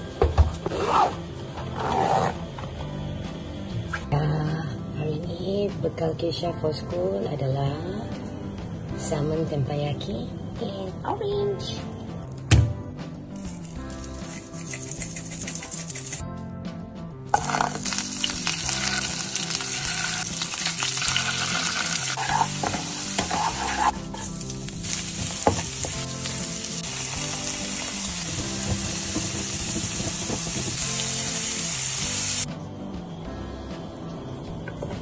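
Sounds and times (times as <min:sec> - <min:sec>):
spatula stirring: 0:13.7 - 0:16.2, 0:22.2 - 0:24.2
vegetables sizzling in frying pan: 0:17.4 - 0:32.5.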